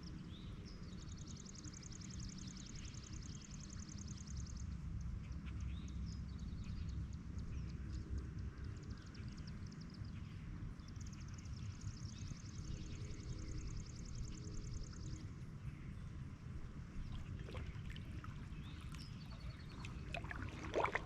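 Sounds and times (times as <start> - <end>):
steady low rumble: 12.8 - 21.0.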